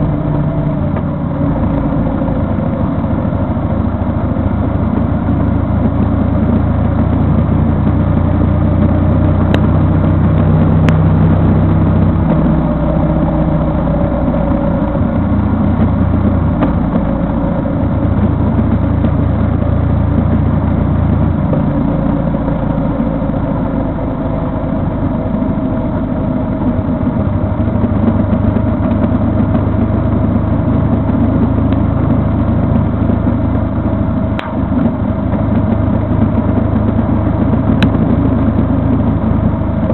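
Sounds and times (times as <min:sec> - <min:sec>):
vehicle engine humming: 0:00.0 - 0:39.9.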